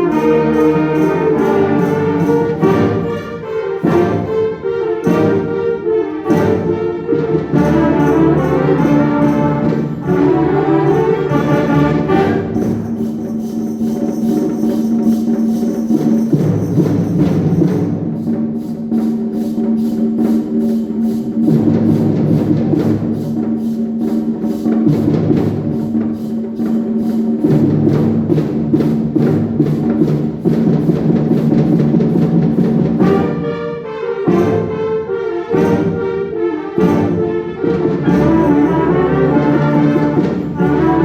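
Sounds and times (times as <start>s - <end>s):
bright brass passage: 0.0s - 13.1s, 33.0s - 41.0s
percussion beat: 0.0s - 41.0s
wind band playing: 0.0s - 41.0s.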